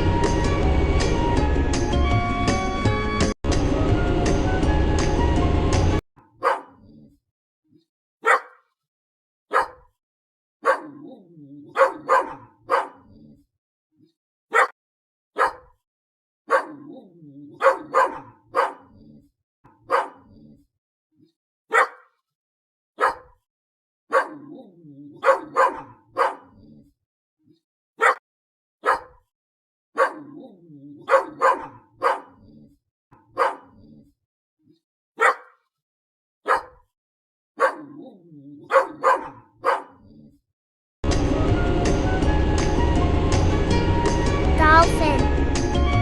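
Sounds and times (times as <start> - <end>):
dog barking: 6.2 - 6.9, 8.2 - 8.8, 9.5 - 10.0, 10.6 - 13.2, 14.5 - 14.8, 15.4 - 15.8, 16.5 - 17.0, 17.6 - 19.0, 19.7 - 20.4, 21.7 - 22.2, 23.0 - 23.4, 24.1 - 24.6, 25.2 - 26.6, 28.0 - 28.2, 28.8 - 29.3, 30.0 - 32.5, 33.2 - 33.9, 35.2 - 35.7, 36.4 - 36.9, 37.6 - 40.1
dog making low rough sounds: 6.7 - 7.2, 13.0 - 13.5, 18.8 - 19.3, 20.2 - 20.7, 33.7 - 34.2.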